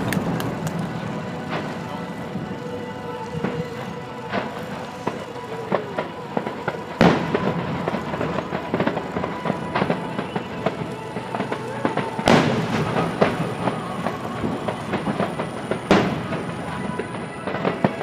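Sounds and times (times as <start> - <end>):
fireworks booms: 0.0 - 18.0
fireworks crackling: 0.0 - 18.0.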